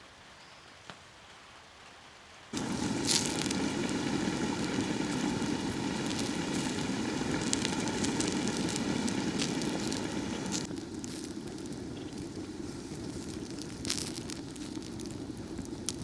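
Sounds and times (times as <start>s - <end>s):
fire burning with rushing noise: 2.5s - 16.0s
fire crackles and pops: 2.5s - 16.0s.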